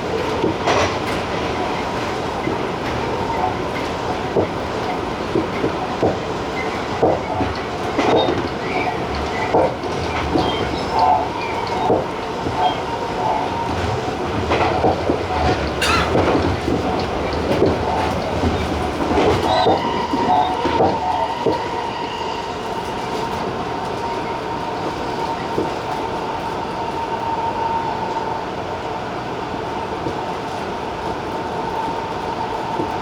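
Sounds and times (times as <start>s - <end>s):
train wheels knocking over rail joints: 0.0s - 21.8s
electric train rolling with whine: 0.0s - 33.0s.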